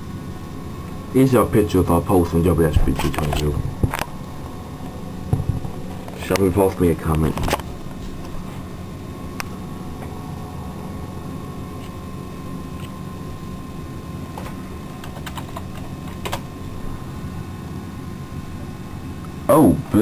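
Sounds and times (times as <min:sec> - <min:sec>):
low electrical hum: 0:00.0 - 0:20.0
keyboard keys clicking: 0:15.0 - 0:16.5.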